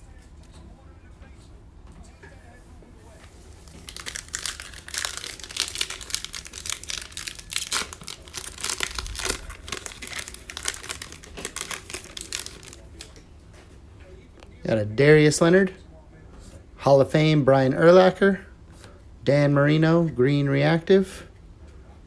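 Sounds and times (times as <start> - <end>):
card pack wrapper crinkling: 3.3 - 13.2.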